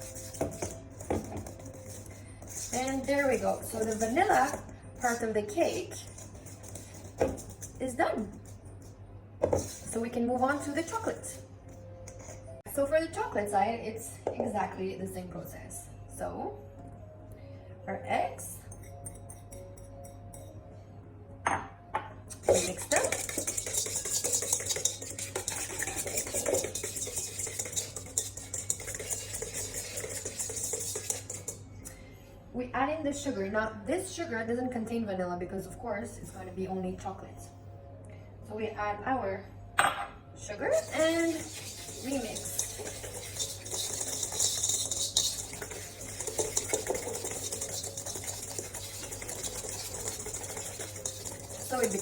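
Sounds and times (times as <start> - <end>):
utensil scraping and clicking on bowl: 0.0 - 12.6, 22.3 - 31.6, 40.7 - 52.0.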